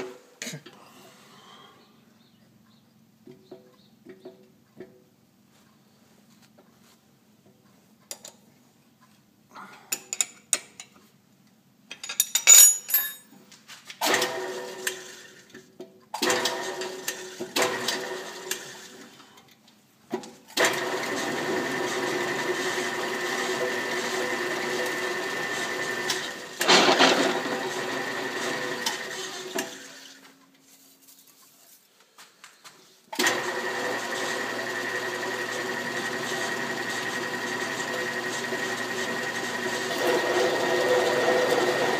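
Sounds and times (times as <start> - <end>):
metal clinks and rattles: 11.9 - 13.4.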